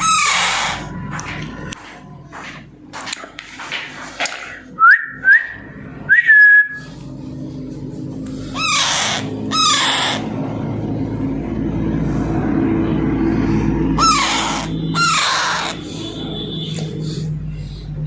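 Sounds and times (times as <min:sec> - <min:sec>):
parakeet rasping squawks: 0:00.0 - 0:01.0, 0:08.3 - 0:10.6, 0:13.9 - 0:17.2.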